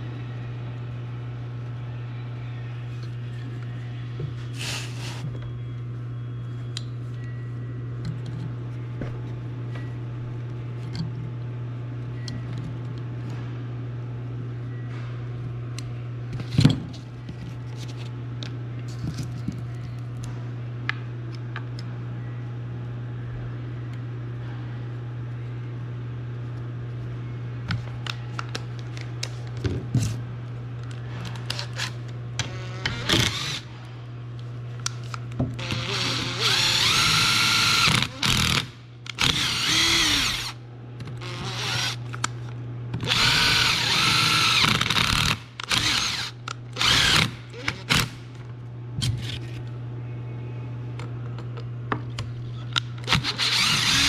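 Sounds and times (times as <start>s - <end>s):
power drill whirring: 32.5s - 33.7s, 35.6s - 40.6s, 41.2s - 42.0s, 43.0s - 48.1s, 53.1s - 54.0s.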